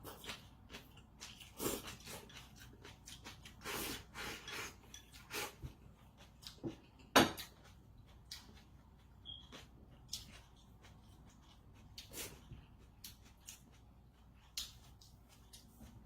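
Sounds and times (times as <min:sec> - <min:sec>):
utensils scraping a dish: 0:03.7 - 0:05.6.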